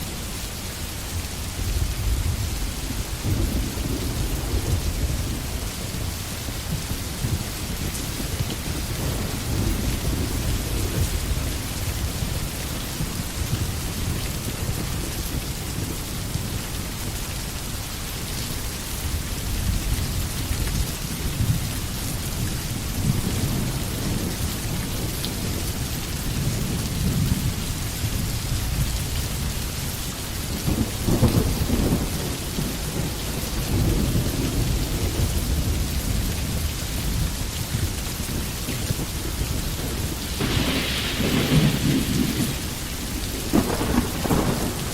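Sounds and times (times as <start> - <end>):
rain falling in a forest: 0.0 - 44.9.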